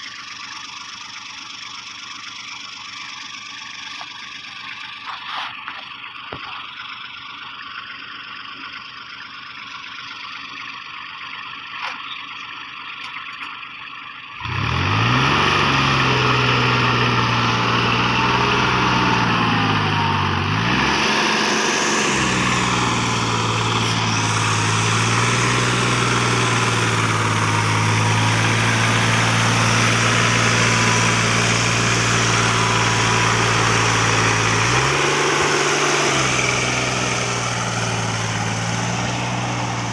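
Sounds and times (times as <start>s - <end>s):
heavy machine engine running: 11.0s - 39.9s.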